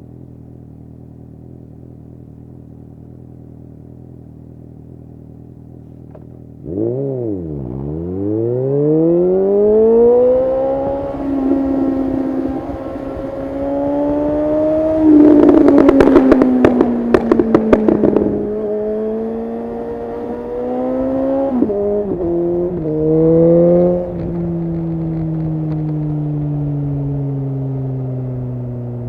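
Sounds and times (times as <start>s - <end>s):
motorcycle engine revving: 0.1s - 29.0s
exhaust pops crackling: 6.0s - 6.6s, 10.8s - 19.4s, 23.8s - 27.0s.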